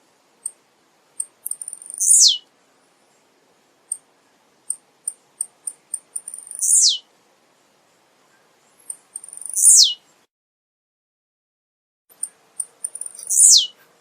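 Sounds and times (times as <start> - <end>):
bird singing high ticks: 1.2 - 2.5, 3.9 - 7.0, 8.3 - 10.0, 12.1 - 14.0.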